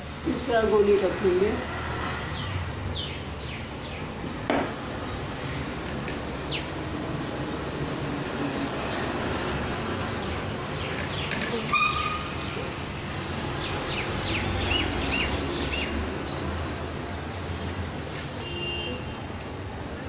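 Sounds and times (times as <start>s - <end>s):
birds chirping: 6.0s - 7.6s, 8.6s - 17.3s.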